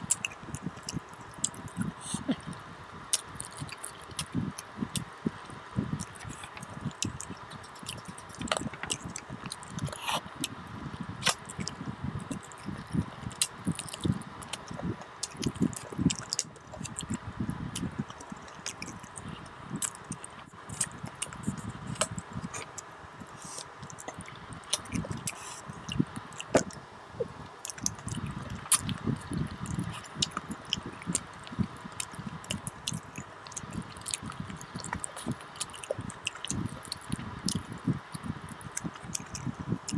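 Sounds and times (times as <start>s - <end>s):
person chewing and lip-smacking: 0.0s - 22.9s, 23.5s - 39.9s
sharp clicks and squishes: 5.9s - 10.2s, 11.2s - 17.2s, 27.6s - 39.9s.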